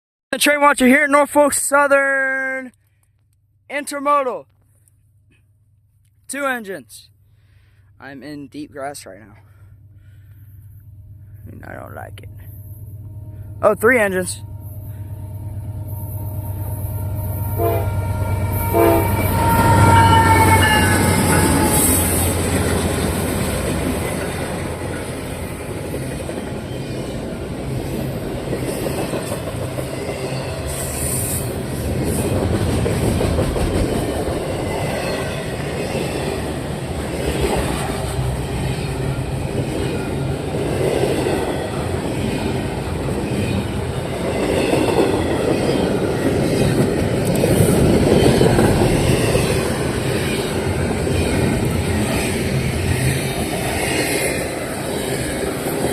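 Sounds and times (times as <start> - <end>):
train cars rushing past: 12.2 - 55.9
train horn: 12.4 - 22.5.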